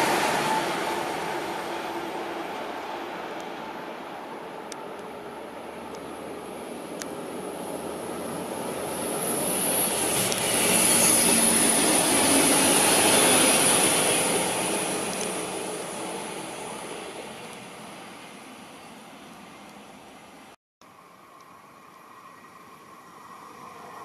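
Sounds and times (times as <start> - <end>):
train wheels rumbling on rails: 0.0 - 20.4
high hiss of passing train: 0.0 - 24.0.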